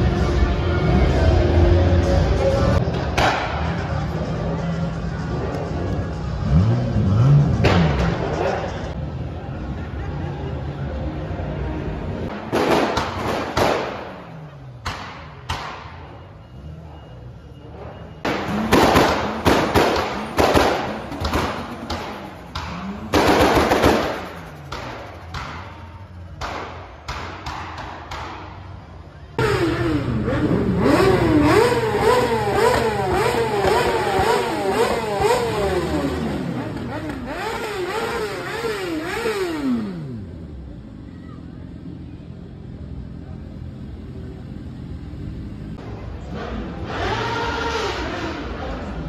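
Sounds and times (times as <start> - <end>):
car engines revving: 0.0 - 49.0
exhaust bangs: 5.6 - 9.0, 12.2 - 17.0, 17.6 - 40.8
motorcycle engine blipping: 14.2 - 19.4, 24.0 - 45.8.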